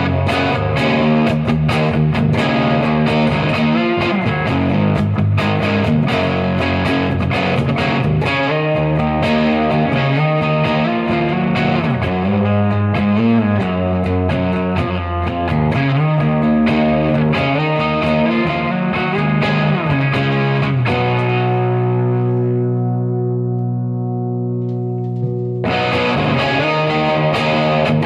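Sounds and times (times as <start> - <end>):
overdriven electric guitar: 0.0 - 28.0.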